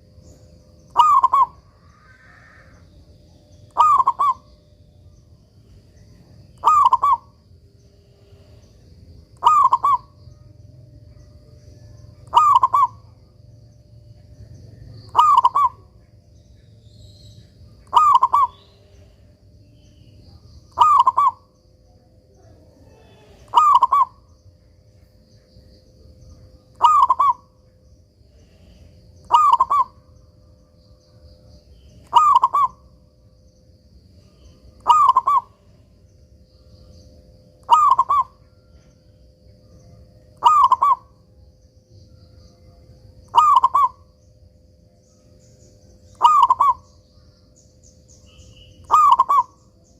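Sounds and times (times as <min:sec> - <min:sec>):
faint steady hum: 0:00.0 - 0:49.9
dove cooing: 0:00.8 - 0:02.9, 0:03.7 - 0:04.6, 0:06.1 - 0:07.4, 0:09.3 - 0:10.4, 0:11.0 - 0:13.2, 0:15.1 - 0:16.1, 0:17.6 - 0:19.2, 0:20.6 - 0:21.6, 0:22.4 - 0:24.4, 0:26.4 - 0:27.5, 0:29.2 - 0:30.1, 0:32.0 - 0:32.9, 0:34.5 - 0:35.9, 0:37.6 - 0:38.8, 0:40.3 - 0:41.2, 0:43.3 - 0:44.1, 0:46.1 - 0:47.2, 0:48.8 - 0:49.8.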